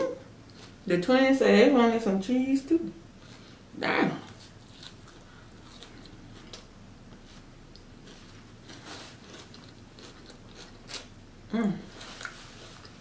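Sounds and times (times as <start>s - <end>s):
chewing lettuce crunches: 4.3s - 13.0s.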